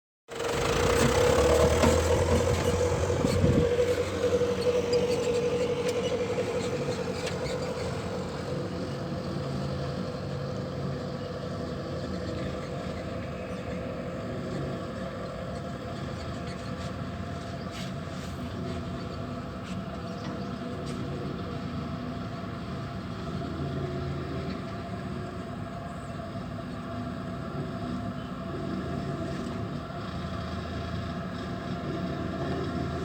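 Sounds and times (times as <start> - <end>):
steady whine: 0.3 - 11.0
diesel machinery engine hum: 0.3 - 33.0.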